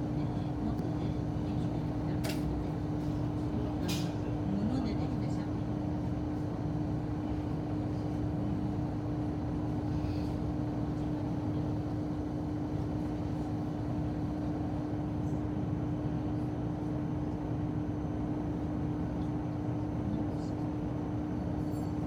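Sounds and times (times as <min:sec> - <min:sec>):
constant hum: 0:00.0 - 0:22.0
diesel railcar rumbling: 0:00.0 - 0:22.0.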